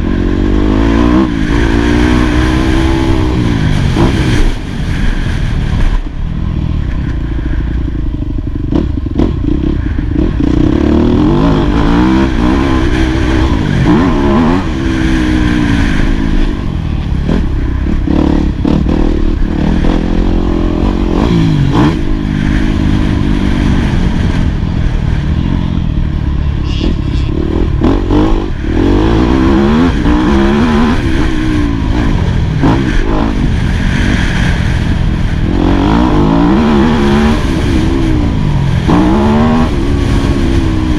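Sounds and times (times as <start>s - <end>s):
motocross engine revving: 8.7s - 24.5s, 26.4s - 40.9s.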